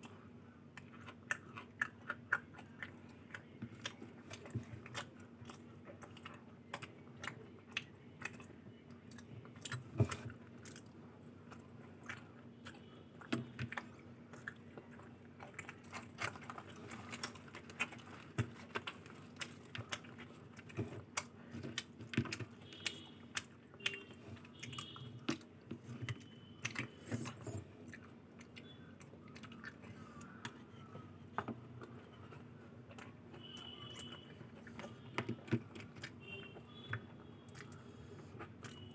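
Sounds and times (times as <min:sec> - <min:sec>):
food crunching: 0:00.0 - 0:38.9
person chewing food: 0:00.0 - 0:38.9.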